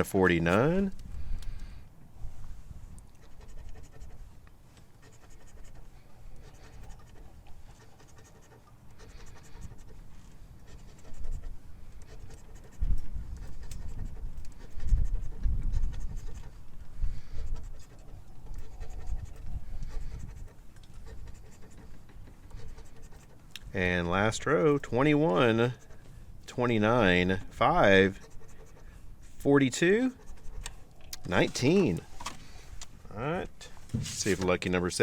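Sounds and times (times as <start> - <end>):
scratching lottery ticket: 3.1 - 32.6
low bumps and rubbing: 33.6 - 34.7.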